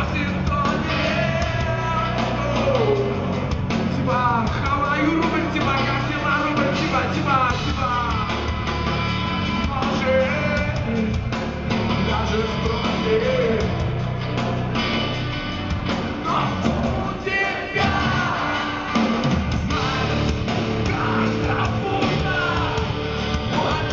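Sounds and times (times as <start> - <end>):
rock band playing: 0.0 - 23.9
pitch-bending guitar melody: 11.5 - 23.9.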